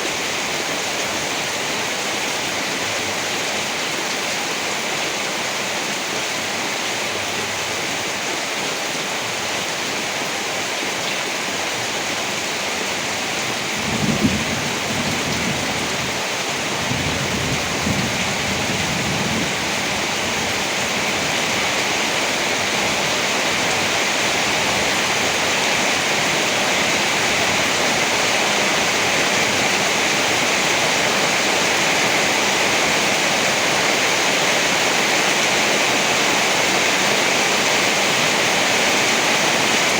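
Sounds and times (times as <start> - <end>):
heavy rain: 0.0 - 39.9
rolling thunder rumbles: 13.8 - 16.1, 16.7 - 20.7.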